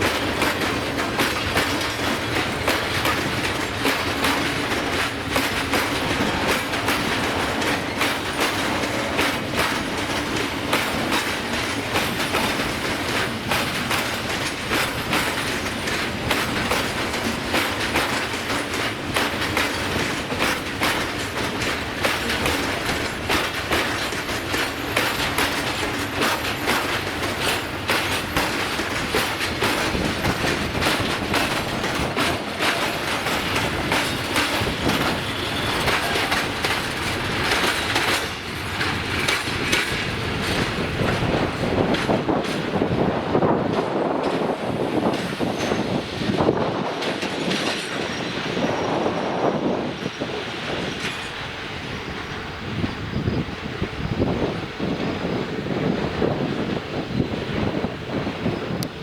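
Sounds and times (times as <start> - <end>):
train wheels clattering on rails: 0.0 - 59.0.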